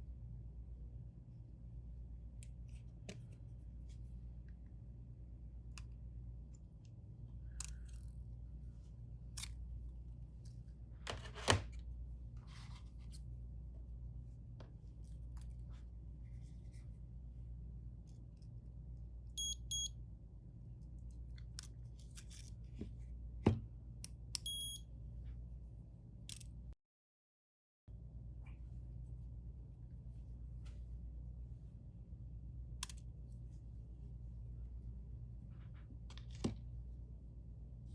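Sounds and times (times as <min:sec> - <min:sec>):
steady low hum: 0:00.0 - 0:11.1, 0:27.9 - 0:37.9.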